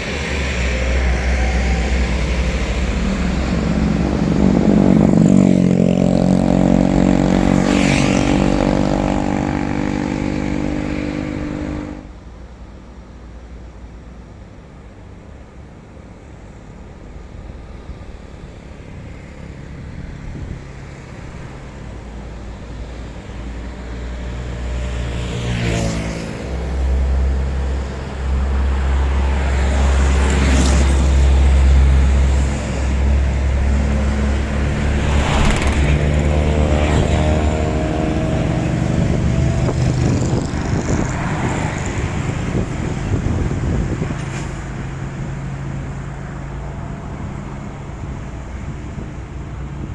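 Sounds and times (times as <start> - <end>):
truck diesel engine labouring: 0.0 - 24.7, 25.8 - 49.9
brief sharp noises: 35.0 - 36.4.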